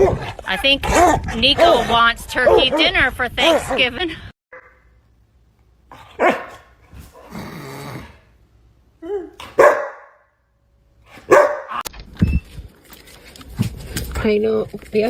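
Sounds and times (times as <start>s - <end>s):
dog barking: 2.4s - 2.9s, 6.0s - 6.7s, 9.4s - 10.3s, 11.1s - 11.8s
dog growling: 7.1s - 8.3s.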